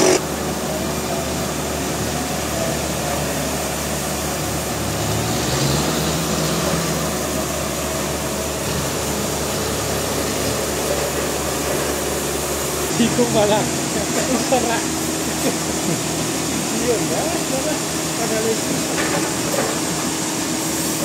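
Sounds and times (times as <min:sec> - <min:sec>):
sawing noise: 0:00.0 - 0:00.3
sawmill machinery engine drone: 0:00.0 - 0:21.0.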